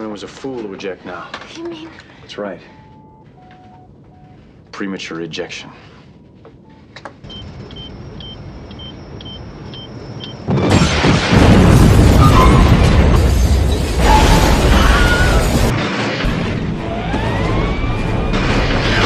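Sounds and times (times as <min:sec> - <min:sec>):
electronic beeps: 0:07.2 - 0:10.5
explosion boom and rumble: 0:10.4 - 0:19.0.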